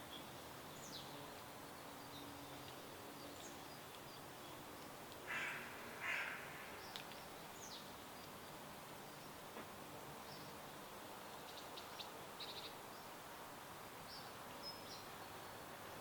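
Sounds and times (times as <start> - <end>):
steady stream-like hiss: 0.0 - 16.0.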